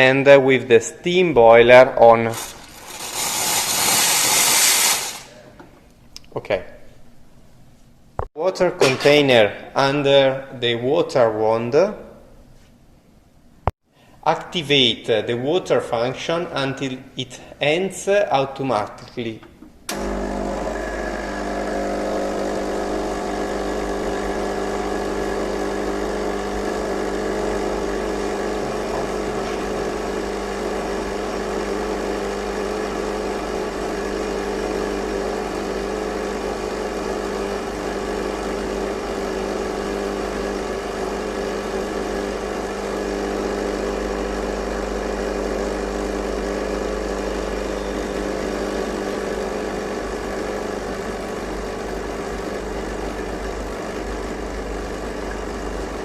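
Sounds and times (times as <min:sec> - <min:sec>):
espresso machine hum: 0:02.3 - 0:05.4, 0:19.9 - 0:56.0
hiss of water and steam: 0:03.3 - 0:05.3.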